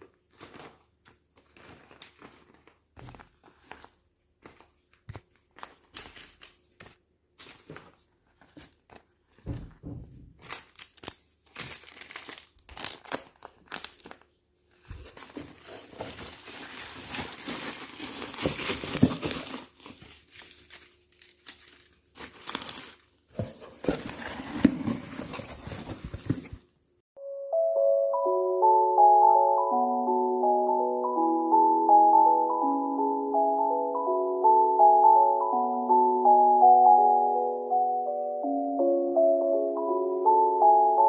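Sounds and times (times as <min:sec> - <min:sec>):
plastic tearing: 0:00.0 - 0:06.9, 0:10.4 - 0:26.6
plastic packaging crinkling: 0:00.0 - 0:09.6, 0:10.3 - 0:26.7.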